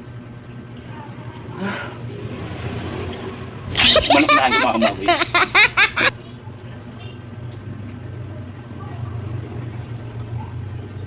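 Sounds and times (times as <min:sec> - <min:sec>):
steady low hum: 0:03.3 - 0:11.0.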